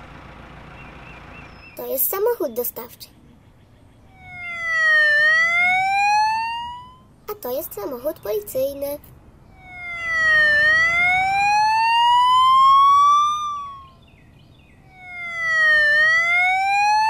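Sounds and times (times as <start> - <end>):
cartoon police siren wail: 4.1 - 7.1, 9.5 - 14.0, 14.8 - 17.0.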